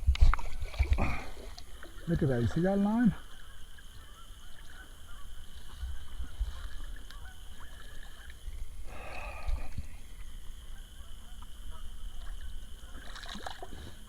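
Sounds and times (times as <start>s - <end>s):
goose honking: 2.0s - 8.3s, 10.6s - 12.0s.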